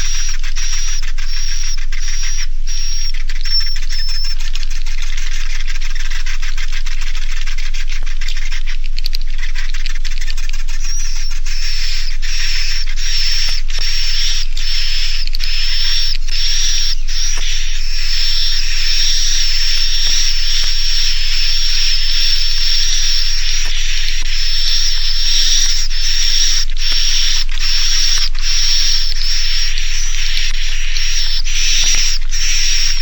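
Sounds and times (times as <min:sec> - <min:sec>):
swiftlets twittering: 0:00.0 - 0:04.4, 0:10.2 - 0:33.0
thin high steady tone: 0:10.9 - 0:33.0.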